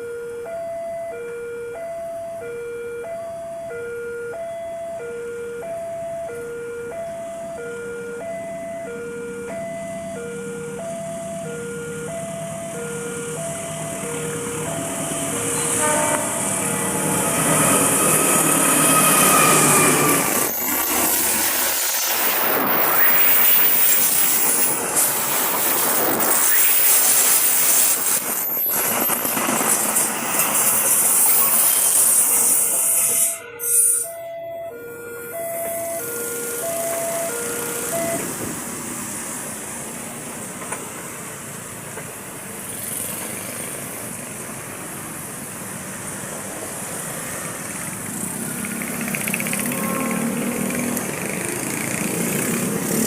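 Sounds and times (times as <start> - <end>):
two-tone warning beeps: 0.0 - 21.1, 32.7 - 38.3
train passing at speed: 6.9 - 34.2, 35.3 - 53.0
train rumble: 9.4 - 34.0, 36.5 - 53.0.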